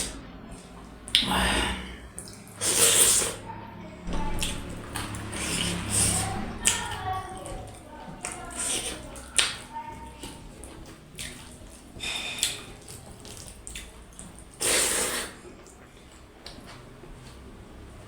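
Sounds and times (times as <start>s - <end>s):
wet chewing and clicks: 0.0s - 1.3s, 2.0s - 3.4s, 4.1s - 17.9s
loud slurp: 0.0s - 3.5s, 4.3s - 7.6s, 8.3s - 9.4s, 14.5s - 15.8s.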